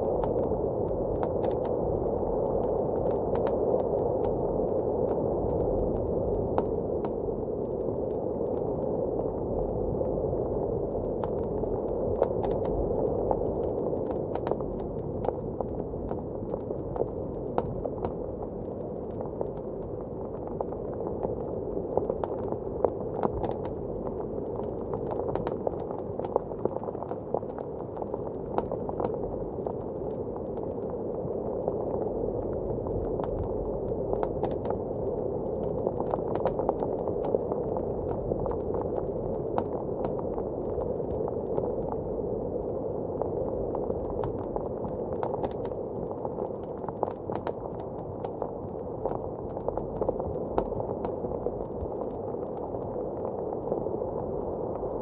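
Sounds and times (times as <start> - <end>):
fire popping and snapping: 35.6 - 41.9.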